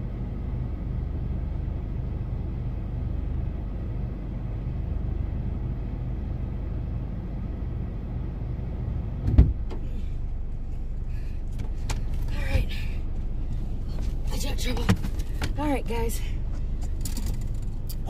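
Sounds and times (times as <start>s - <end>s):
car engine idling: 0.0s - 18.0s
loud thump: 9.2s - 9.8s.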